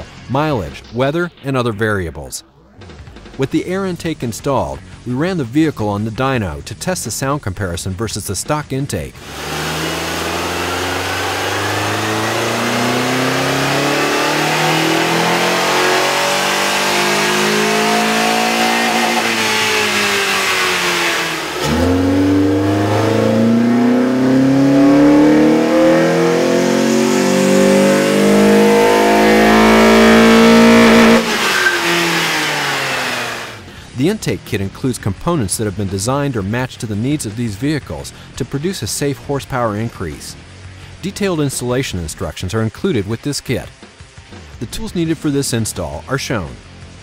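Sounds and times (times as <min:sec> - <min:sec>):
car engine revving: 0:09.2 - 0:33.9.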